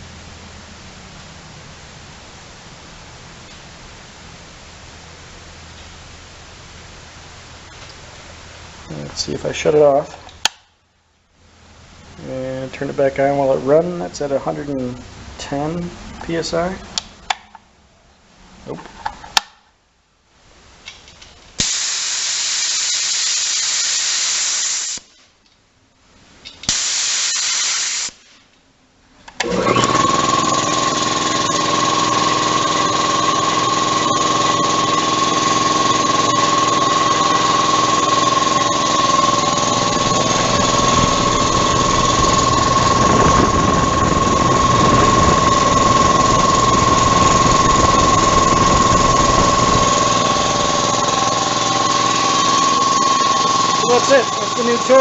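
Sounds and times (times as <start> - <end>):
air compressor running: 21.6 - 25.0, 26.7 - 28.3, 29.4 - 55.0
compressed air hissing: 21.6 - 25.2, 26.7 - 28.4.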